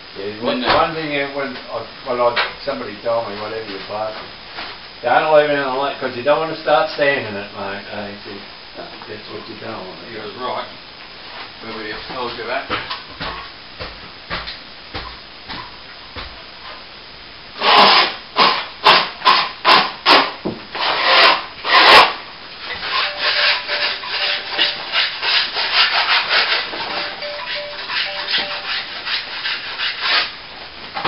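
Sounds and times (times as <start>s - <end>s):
scraping dried plaster: 17.6s - 26.9s, 28.5s - 30.4s.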